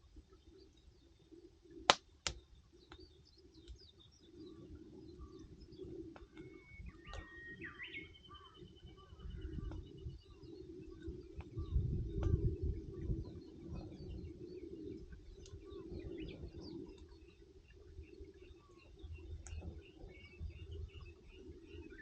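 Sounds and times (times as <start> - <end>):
small birds chirping: 0.2 - 22.0
campfire pops: 1.8 - 3.8.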